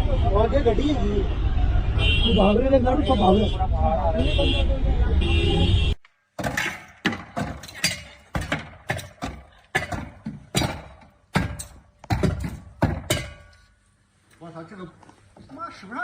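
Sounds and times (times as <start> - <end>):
sharp knocks and bangs: 6.3 - 13.7.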